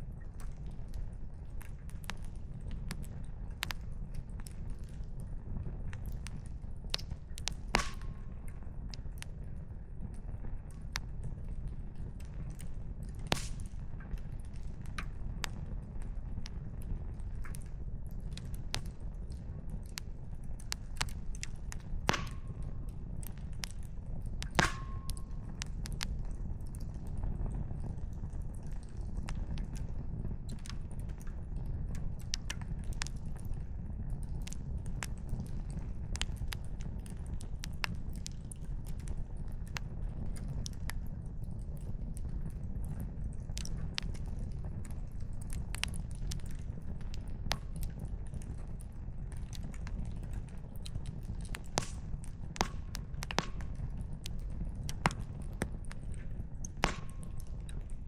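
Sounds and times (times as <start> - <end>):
wood fire crackling: 0.0 - 58.0
steady low rumble: 51.3 - 58.0.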